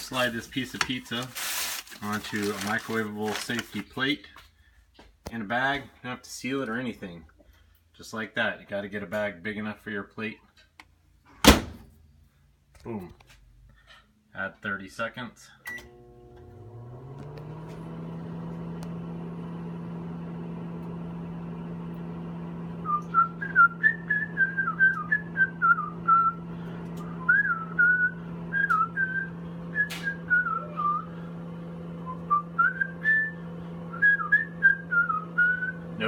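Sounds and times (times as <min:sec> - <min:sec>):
microwave oven humming: 0:00.0 - 0:03.9, 0:15.7 - 0:36.0
man whistling a tune: 0:22.8 - 0:26.4, 0:27.2 - 0:31.2, 0:32.0 - 0:35.8.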